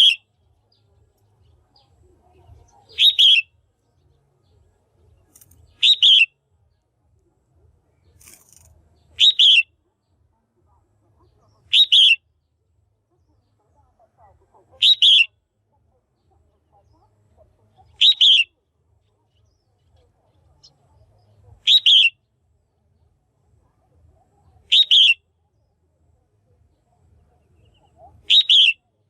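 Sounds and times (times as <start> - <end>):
bird two-note calls: 3.0 - 3.5.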